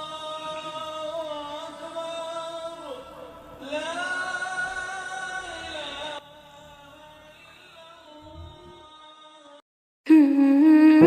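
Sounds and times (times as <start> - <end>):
music: 0.0 - 9.6
person singing long notes: 8.0 - 9.0, 10.1 - 11.0.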